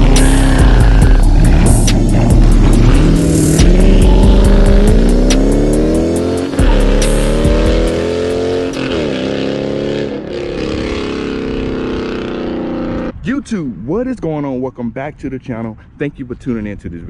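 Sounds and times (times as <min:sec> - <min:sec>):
car engine accelerating: 0:00.0 - 0:13.2.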